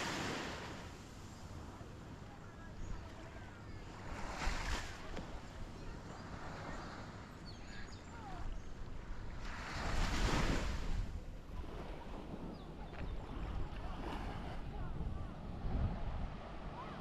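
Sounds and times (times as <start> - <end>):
small waves breaking on sand: 0.0 - 17.0
wind rumble on microphone: 4.0 - 17.0.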